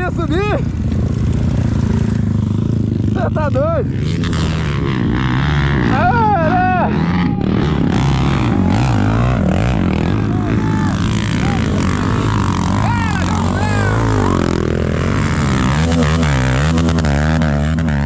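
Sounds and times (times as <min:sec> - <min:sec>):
vehicle engine revving: 0:00.0 - 0:18.0
voices calling out: 0:04.8 - 0:16.4.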